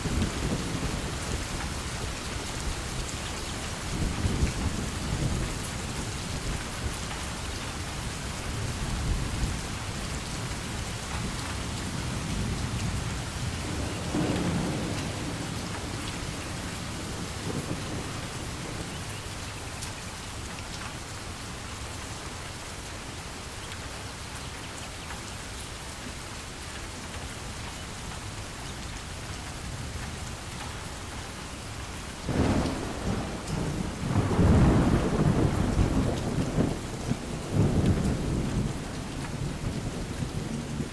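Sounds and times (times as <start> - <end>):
heavy rain falling: 0.0 - 40.9
rolling thunder: 11.9 - 19.1, 32.3 - 40.9.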